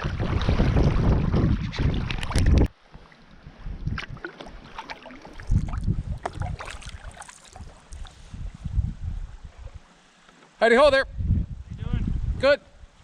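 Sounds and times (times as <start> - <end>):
wind buffeting microphone: 0.0 - 2.7, 3.4 - 4.7, 5.3 - 9.9, 10.8 - 13.0
paddle splashing water: 0.0 - 8.5.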